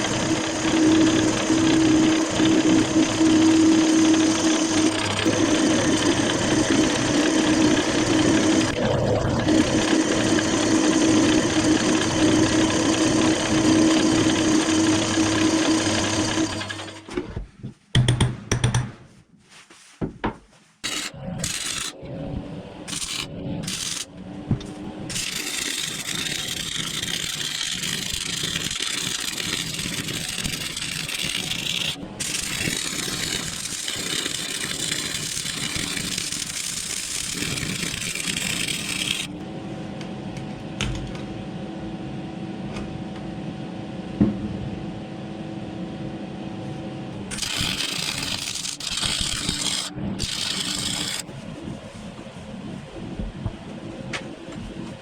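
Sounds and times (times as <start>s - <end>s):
different machine running: 0.0s - 17.1s, 20.8s - 39.6s, 47.1s - 51.3s.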